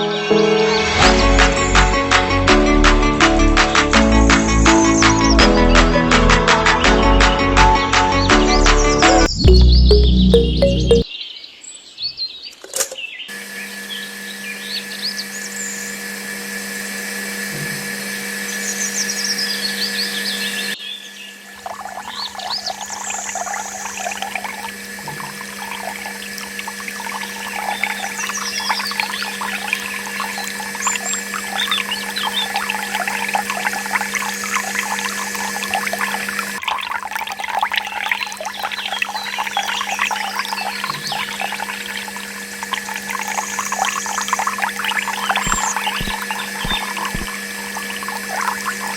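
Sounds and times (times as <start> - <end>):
high chirps: 9.3 - 11.1, 42.7 - 48.9
water trickling in a stream: 21.5 - 48.9
small electric power tool running: 22.8 - 36.6, 39.8 - 48.9.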